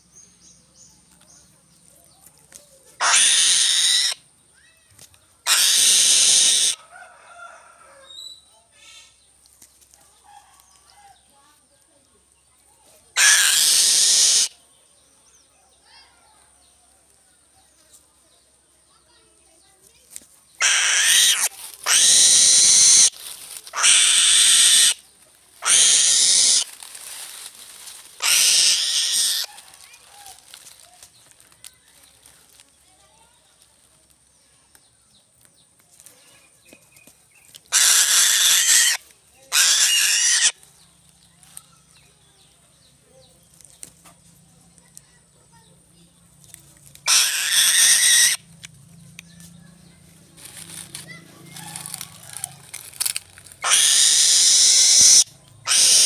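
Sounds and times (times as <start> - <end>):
bird of prey hissing calls: 3.0 - 4.2, 5.5 - 6.8, 13.2 - 14.6, 20.6 - 25.0, 25.6 - 26.7, 28.2 - 29.5, 37.7 - 40.6, 47.1 - 48.4, 53.6 - 56.0
eagle screeching: 3.0 - 4.2, 5.4 - 6.8, 13.2 - 14.6, 20.6 - 25.0, 25.6 - 26.8, 28.2 - 29.5, 37.7 - 40.6, 47.0 - 48.5, 51.8 - 56.0
small birds chirping: 8.1 - 56.0.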